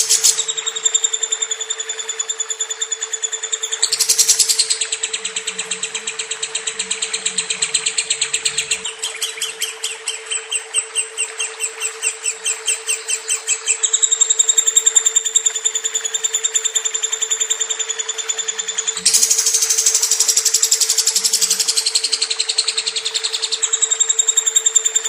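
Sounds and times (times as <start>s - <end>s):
steady low hum: 3.2s - 16.5s.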